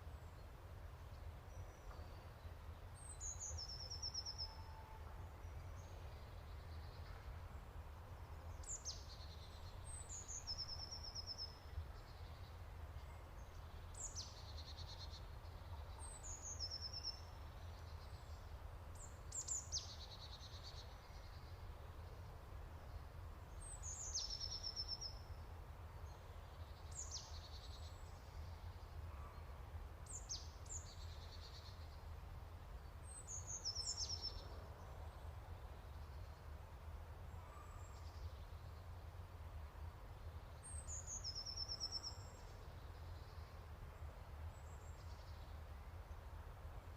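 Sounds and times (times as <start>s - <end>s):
songbird singing: 0.0s - 46.9s.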